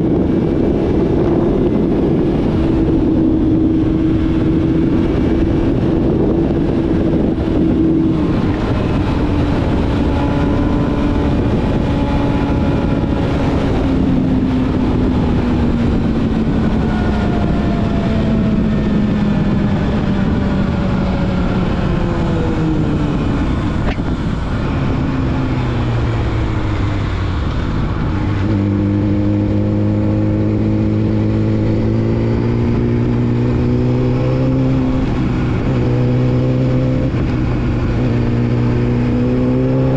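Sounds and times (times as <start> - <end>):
motorcycle engine at speed: 0.0 - 39.9
wind rush: 0.0 - 39.9.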